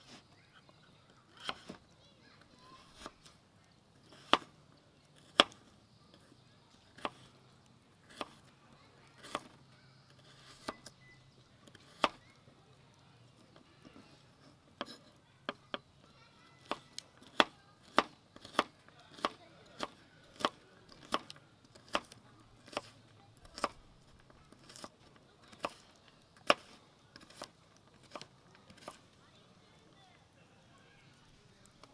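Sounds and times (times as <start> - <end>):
knife chopping on cutting board: 1.4 - 1.8, 4.1 - 4.5, 5.2 - 5.6, 7.0 - 7.3, 8.1 - 8.4, 9.2 - 9.6, 10.2 - 10.9, 11.8 - 12.2, 14.8 - 15.2, 16.6 - 23.8, 24.6 - 24.9, 25.5 - 25.8, 26.4 - 29.0.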